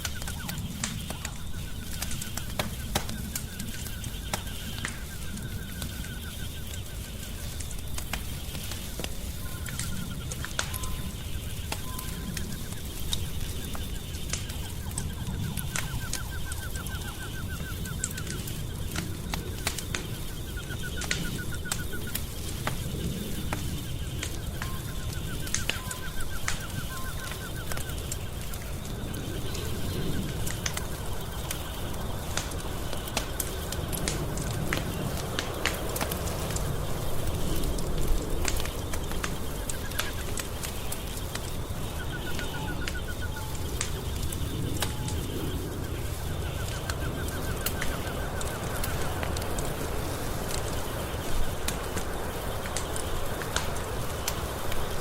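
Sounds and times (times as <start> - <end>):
faint high chirps: 0.0 - 34.0
fire crackling and popping: 0.0 - 55.0
low rumble of fire: 0.0 - 55.0.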